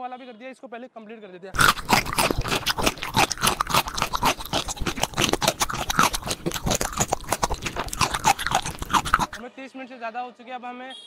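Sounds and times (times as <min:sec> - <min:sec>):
crunching ice cream bar: 0:01.6 - 0:09.4
mouth noises: 0:01.6 - 0:09.4.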